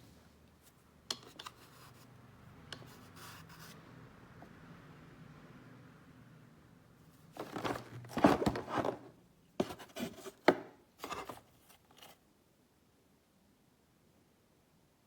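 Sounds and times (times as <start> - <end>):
scraping and rubbing handling noise: 0.0 - 3.8, 7.1 - 12.2.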